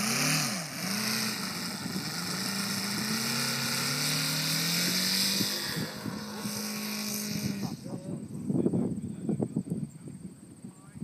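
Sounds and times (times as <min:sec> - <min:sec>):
model aircraft radial engine running: 0:00.0 - 0:08.7.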